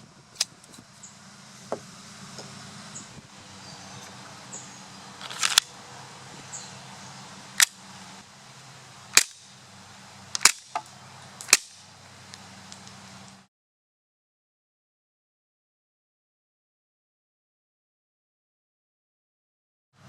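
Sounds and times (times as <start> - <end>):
pistol slide cycling: 0.3 - 0.8, 5.2 - 5.8, 7.6 - 7.8, 9.1 - 9.5, 10.3 - 13.4
airsoft pistol shots: 9.1 - 9.5, 10.4 - 10.8.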